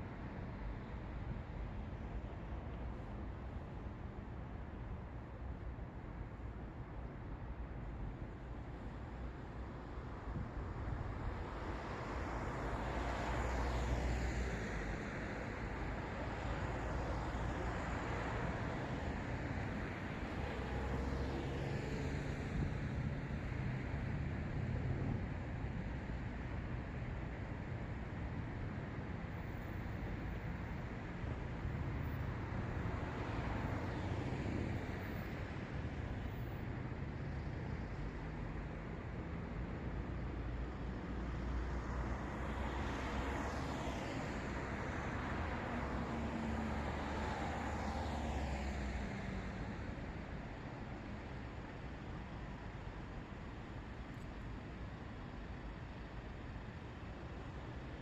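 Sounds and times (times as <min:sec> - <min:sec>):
steady traffic hum: 0:00.0 - 0:58.0
cars driving by: 0:42.2 - 0:49.8.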